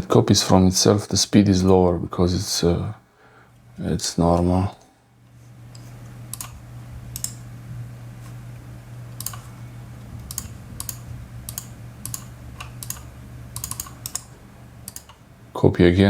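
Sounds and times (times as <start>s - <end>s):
hard drive humming: 0.0s - 16.0s
hard drive clicking: 8.4s - 15.2s.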